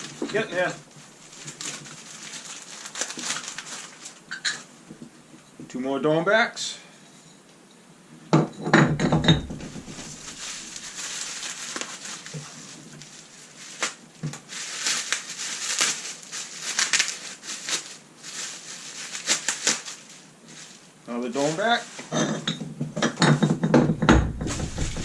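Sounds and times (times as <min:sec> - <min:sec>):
packing material crinkling: 0:00.0 - 0:04.7, 0:09.4 - 0:22.1, 0:24.3 - 0:25.0
loud knock: 0:08.8 - 0:10.4, 0:23.7 - 0:25.0.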